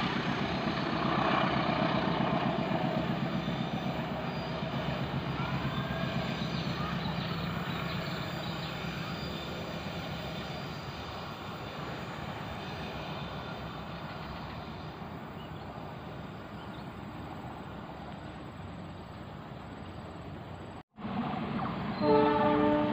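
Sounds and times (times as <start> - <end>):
train rumbling along track: 0.0 - 22.9.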